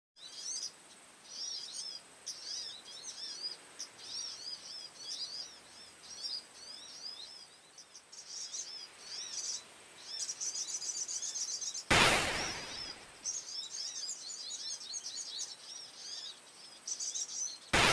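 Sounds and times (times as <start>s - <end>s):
songbird chirping: 0.2s - 17.9s
loud rushing noise: 11.9s - 13.2s.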